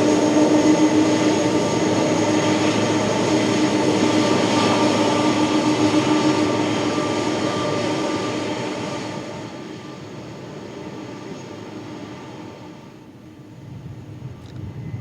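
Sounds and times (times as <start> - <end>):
jet engines with whine: 0.0 - 15.0.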